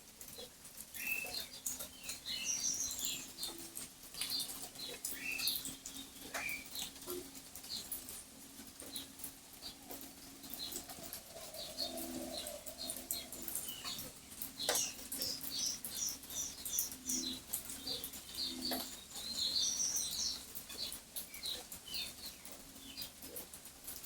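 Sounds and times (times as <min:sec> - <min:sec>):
bird cooing: 0:10.6 - 0:15.3.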